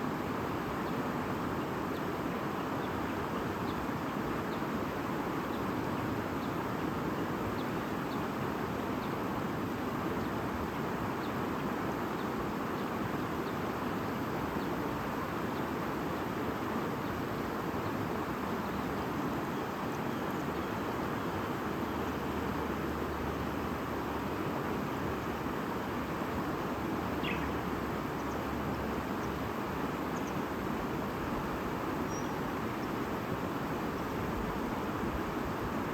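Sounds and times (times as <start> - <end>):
faint bird chirps: 27.2 - 27.6, 32.0 - 32.4.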